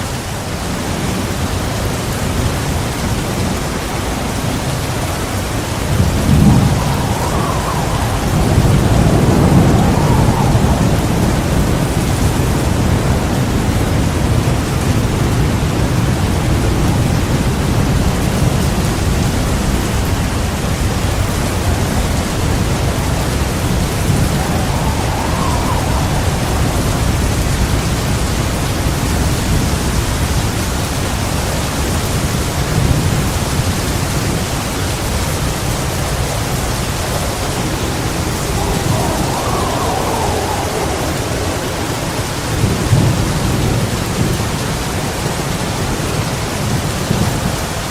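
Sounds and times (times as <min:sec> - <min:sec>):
heavy rain falling: 0:00.0 - 0:47.9
thunder rumbling: 0:00.5 - 0:47.8.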